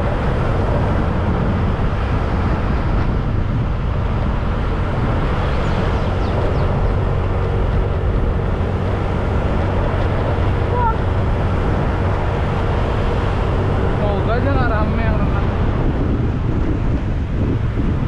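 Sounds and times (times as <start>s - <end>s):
motorcycle engine hum: 0.0s - 18.0s
wind and road noise: 0.0s - 18.0s.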